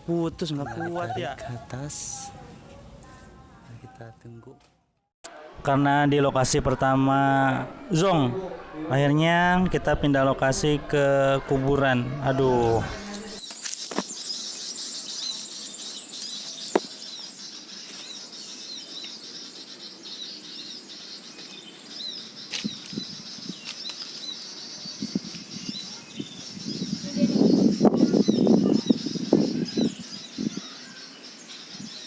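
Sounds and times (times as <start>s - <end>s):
small birds chirping: 11.5s - 32.0s.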